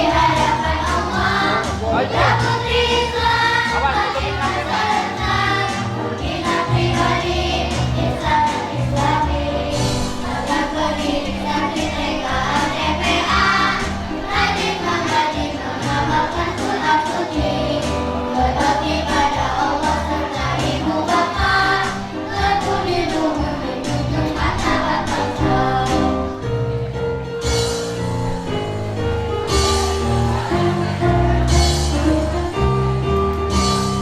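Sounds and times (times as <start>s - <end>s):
children's choir singing: 0.0s - 26.6s, 28.8s - 32.7s
musical accompaniment with bass line: 0.0s - 34.0s.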